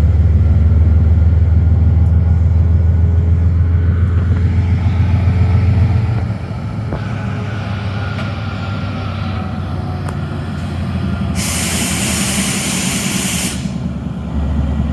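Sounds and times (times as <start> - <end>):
train rumble: 0.0 - 14.9
loud hiss: 11.3 - 13.9.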